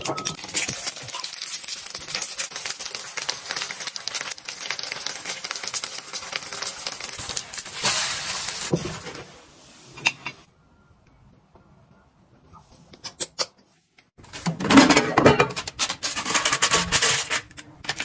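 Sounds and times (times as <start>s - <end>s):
flatbread sizzling in oil: 0.6s - 9.9s.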